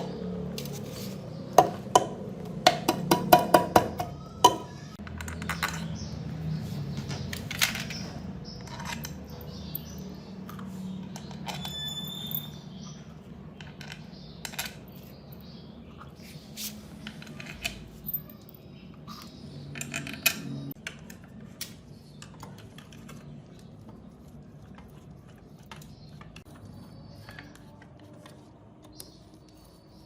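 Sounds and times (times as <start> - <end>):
metal parts and tools clinking: 7.0 - 13.0, 13.6 - 15.6, 16.9 - 21.2.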